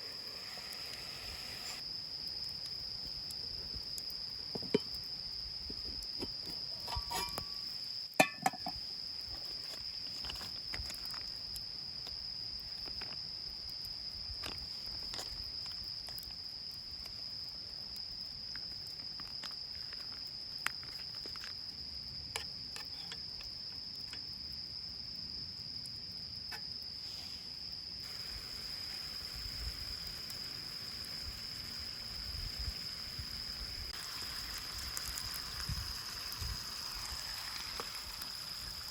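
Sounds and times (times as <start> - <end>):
soft hiss: 0.0 - 3.4
campfire crackling: 0.0 - 5.4, 28.0 - 38.9
crickets trilling: 0.0 - 38.9.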